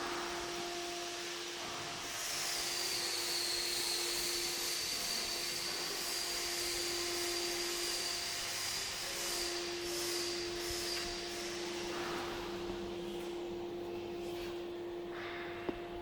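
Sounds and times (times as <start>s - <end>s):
high constant whine: 0.0s - 16.0s
machine hum: 6.3s - 16.0s.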